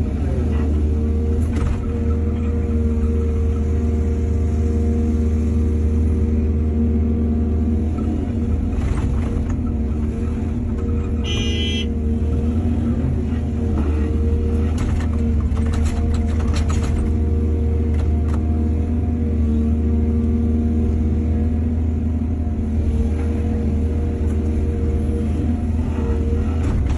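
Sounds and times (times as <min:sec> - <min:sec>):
diesel engine running: 0:00.0 - 0:26.9
machinery clatter: 0:14.6 - 0:17.2.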